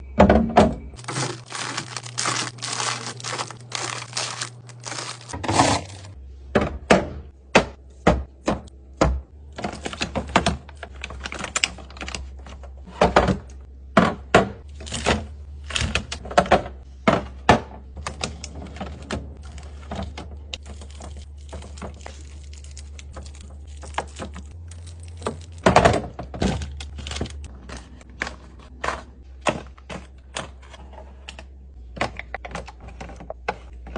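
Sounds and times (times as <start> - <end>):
items knocking on fridge shelves: 0.1 - 11.2, 12.8 - 22.1, 25.2 - 30.6
plastic containers clattering: 0.2 - 6.2.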